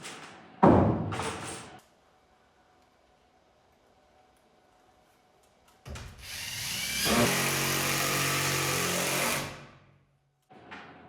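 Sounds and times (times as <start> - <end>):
power drill driving a screw: 6.2 - 9.7.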